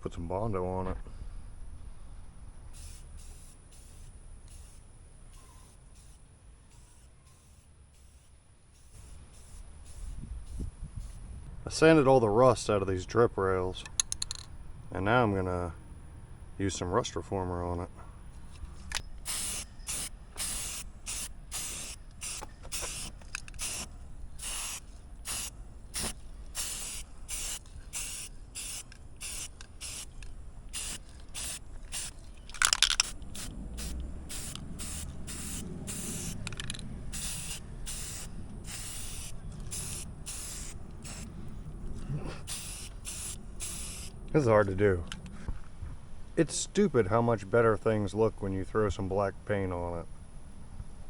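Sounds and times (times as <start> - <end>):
aerosol can spraying: 2.8 - 4.8, 5.4 - 11.2, 19.2 - 32.2, 33.0 - 36.5, 37.1 - 41.3, 42.4 - 44.1.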